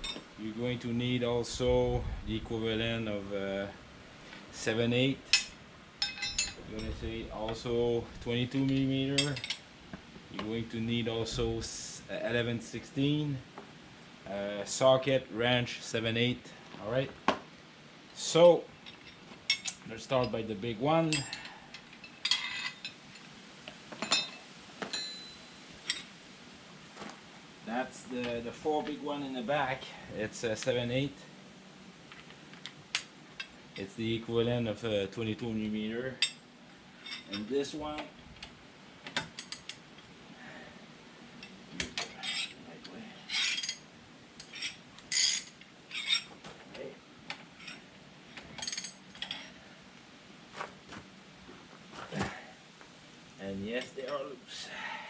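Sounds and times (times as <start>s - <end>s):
steel sockets clinking: 5.3s - 7.0s, 43.3s - 43.8s, 44.4s - 46.3s, 48.4s - 49.5s
ringing metal knocks: 24.9s - 25.5s.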